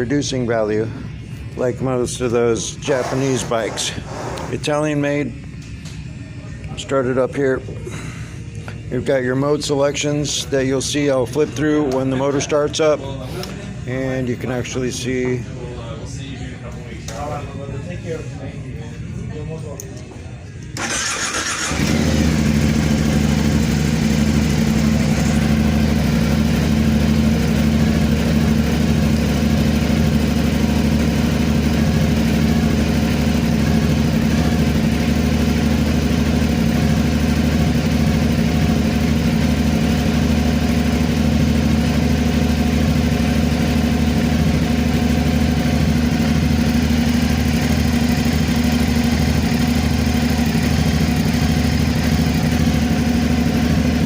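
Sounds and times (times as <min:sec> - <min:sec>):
motorcycle engine starting and idling: 0:20.6 - 0:54.0.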